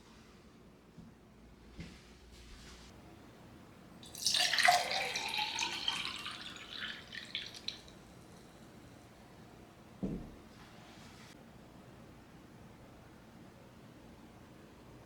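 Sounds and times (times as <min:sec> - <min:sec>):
water pouring and splashing: 0:04.0 - 0:08.0
water dripping: 0:04.0 - 0:09.0.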